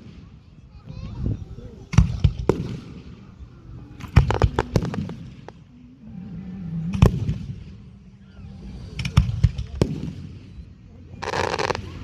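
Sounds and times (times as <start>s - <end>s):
fireworks exploding: 0.9s - 5.7s, 8.6s - 12.0s.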